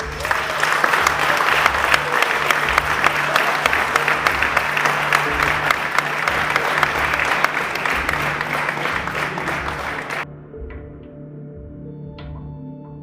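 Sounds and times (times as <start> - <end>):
crowd applauding: 0.0 - 10.2
background music: 0.0 - 13.0.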